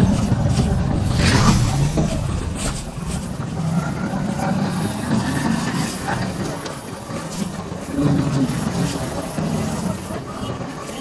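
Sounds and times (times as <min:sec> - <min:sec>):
road noise: 0:00.0 - 0:04.3
rush of noise: 0:00.0 - 0:05.1.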